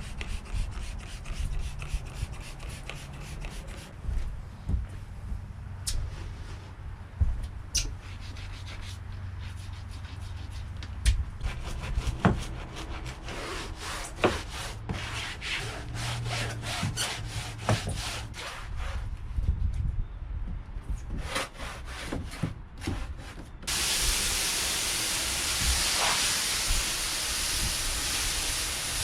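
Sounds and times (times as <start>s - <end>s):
scrub brush scrubbing a deck: 11.5s - 19.1s, 23.1s - 29.0s.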